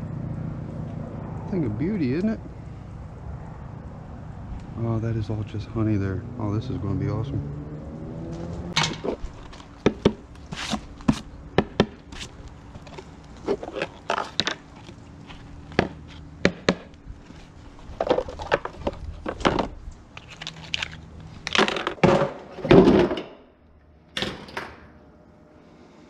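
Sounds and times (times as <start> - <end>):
beehive parts knocking and scraping: 8.8 - 23.2.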